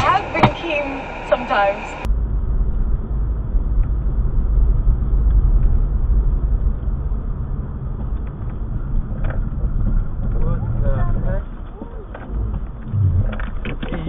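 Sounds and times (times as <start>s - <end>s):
car driving rumble: 0.0s - 14.0s.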